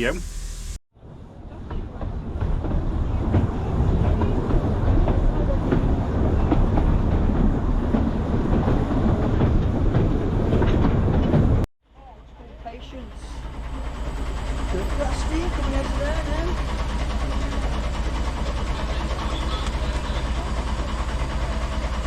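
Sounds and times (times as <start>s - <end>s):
steam train running past: 0.0s - 0.8s, 12.7s - 22.0s.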